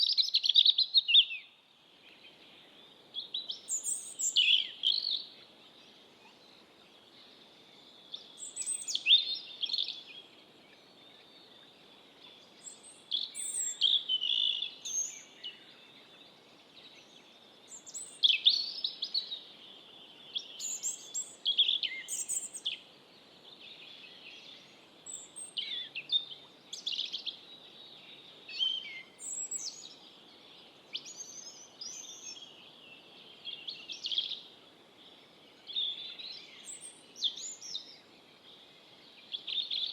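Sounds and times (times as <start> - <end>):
robin singing: 0.0 - 1.5, 3.2 - 5.4, 8.0 - 10.9, 12.4 - 15.9, 17.7 - 19.5, 20.2 - 34.5, 35.6 - 38.1, 39.1 - 39.9.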